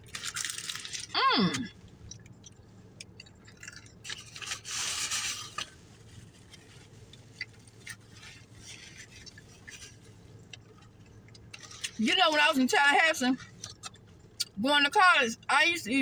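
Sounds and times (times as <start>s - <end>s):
food packaging rustling: 0.0s - 1.1s, 3.2s - 12.5s
low steady hum: 0.0s - 16.0s.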